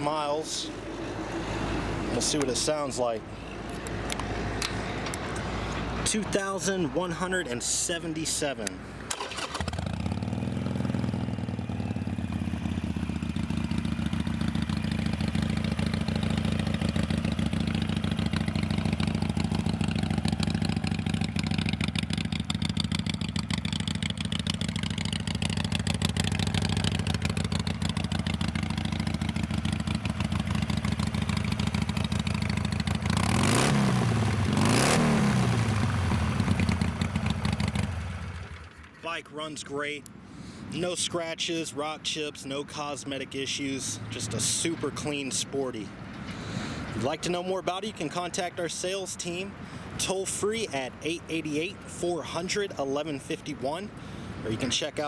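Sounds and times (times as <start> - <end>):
motorcycle engine starting and idling: 3.7 - 39.6
motorcycle throttle blips: 8.6 - 39.0.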